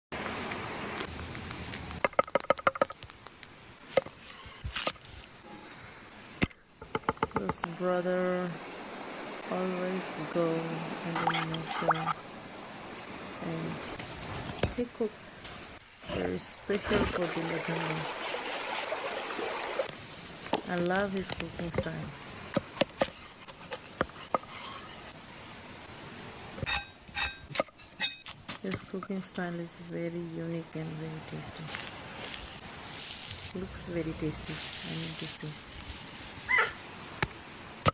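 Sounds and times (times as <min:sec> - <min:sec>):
faint steady hiss: 0:19.8 - 0:37.9.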